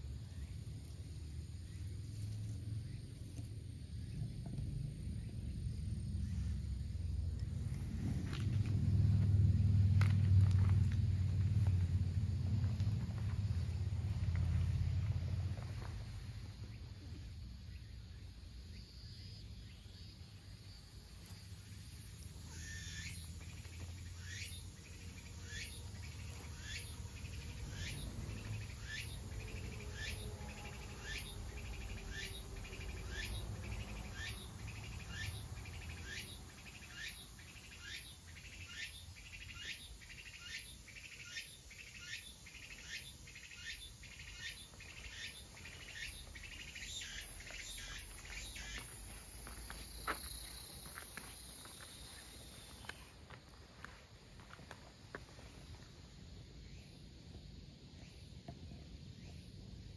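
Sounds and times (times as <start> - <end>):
low background rumble: 0.0 - 18.3.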